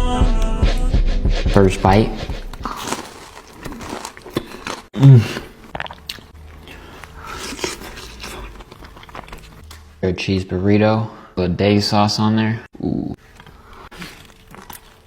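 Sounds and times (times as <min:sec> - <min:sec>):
crunchy chewing: 0:02.4 - 0:09.9, 0:13.2 - 0:15.0.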